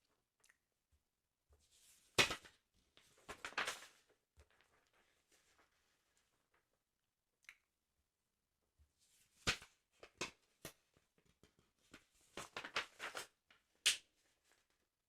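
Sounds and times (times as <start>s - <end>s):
sticker album crackling: 12.3s - 14.0s.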